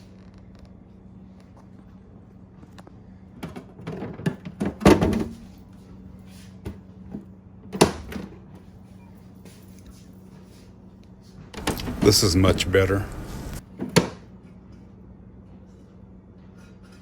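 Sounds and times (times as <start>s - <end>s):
refrigerator door thump: 11.6s - 12.2s
steady low hum: 11.6s - 13.6s.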